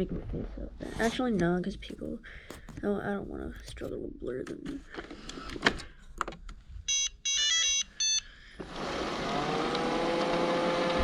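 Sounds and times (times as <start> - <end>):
vacuum motor whining: 8.6 - 11.0.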